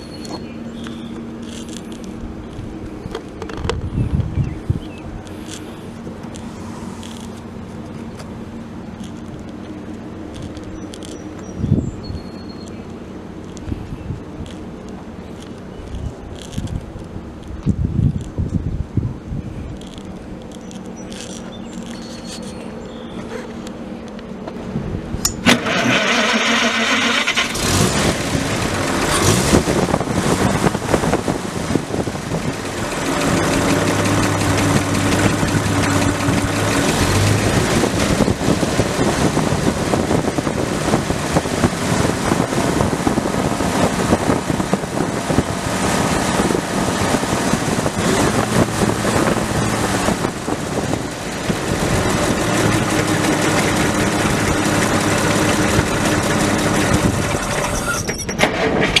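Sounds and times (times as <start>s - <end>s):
car engine running: 0.0s - 18.9s, 19.6s - 58.2s
road and wind noise: 0.0s - 59.0s.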